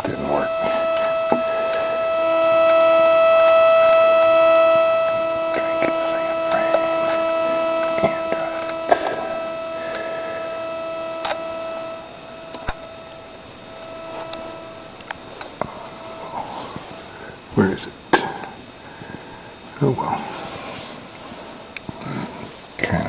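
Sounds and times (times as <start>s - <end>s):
low electronic tone: 0.0s - 18.2s
electronic hum and whine: 0.0s - 23.0s
sharp clicks: 11.2s - 11.4s.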